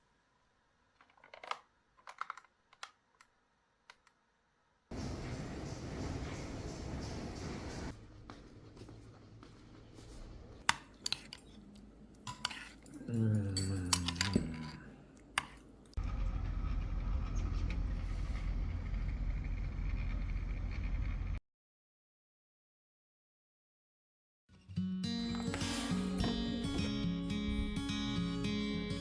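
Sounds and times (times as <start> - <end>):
dishes and utensils clattering: 10.8 - 15.7
steady low hum: 14.1 - 21.4.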